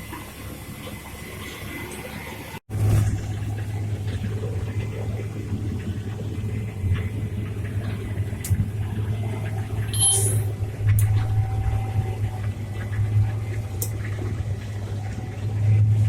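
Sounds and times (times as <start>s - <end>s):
high squeak: 9.9s - 10.5s.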